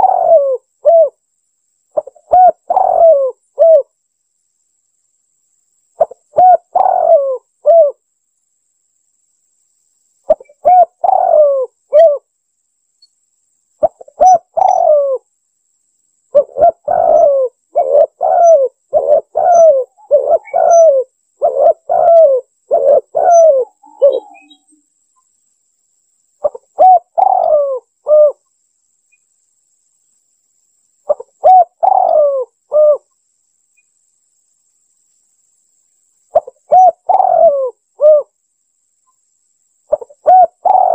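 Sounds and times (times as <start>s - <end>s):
dove cooing: 0.0s - 1.2s, 2.0s - 3.9s, 6.0s - 8.0s, 10.3s - 12.3s, 13.8s - 15.2s, 16.3s - 24.7s, 26.4s - 28.4s, 31.1s - 33.1s, 36.3s - 38.3s, 39.9s - 40.9s.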